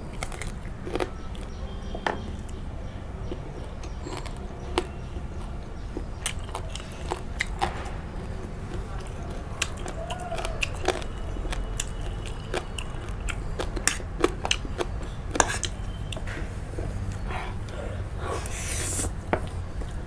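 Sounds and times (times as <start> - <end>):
person chewing and biting: 3.8 - 7.9, 8.5 - 20.0.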